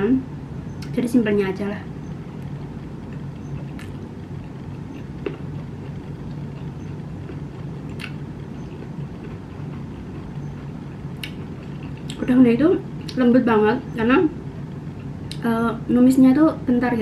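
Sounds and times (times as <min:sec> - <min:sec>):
low hum: 0:00.0 - 0:17.0
person chewing: 0:02.4 - 0:12.2.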